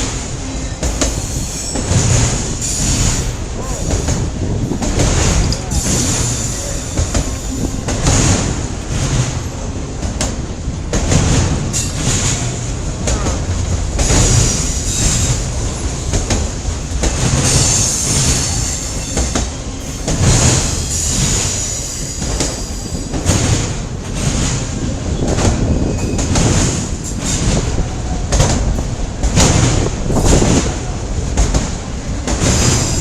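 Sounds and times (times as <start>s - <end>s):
train wheels rumbling on rail: 0.0s - 33.0s
high squeal of wheels: 25.7s - 26.4s.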